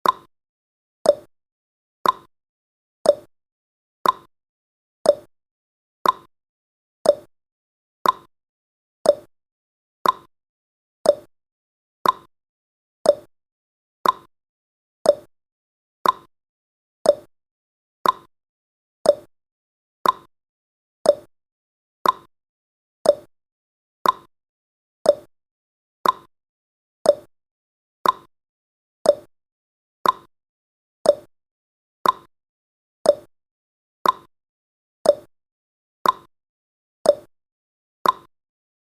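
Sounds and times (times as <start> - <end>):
timer ticking: 0.0 - 0.3, 1.0 - 1.3, 2.0 - 2.3, 3.0 - 3.3, 4.0 - 4.3, 5.1 - 5.3, 6.0 - 6.3, 7.0 - 7.3, 8.0 - 8.3, 9.0 - 9.3, 10.0 - 10.3, 11.0 - 11.3, 12.0 - 12.3, 13.0 - 13.3, 14.0 - 14.3, 15.0 - 15.3, 16.0 - 16.3, 17.0 - 17.3, 18.0 - 18.3, 19.0 - 19.3, 20.0 - 20.3, 21.0 - 21.3, 22.0 - 22.3, 23.0 - 23.3, 24.0 - 24.3, 25.0 - 25.3, 26.0 - 26.3, 27.0 - 27.3, 28.0 - 28.3, 29.0 - 29.3, 30.0 - 30.3, 31.0 - 31.3, 32.0 - 32.3, 33.0 - 33.3, 34.0 - 34.3, 35.0 - 35.3, 36.0 - 36.3, 37.1 - 37.3, 38.0 - 38.3.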